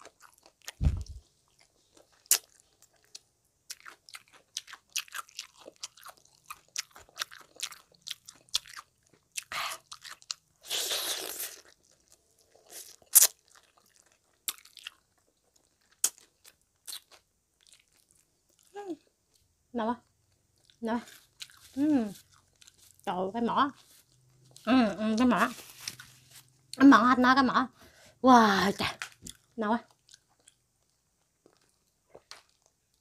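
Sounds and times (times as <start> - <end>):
crunching and chewing fried food: 0.0 - 26.8, 28.9 - 33.0
low thump: 0.8 - 1.2.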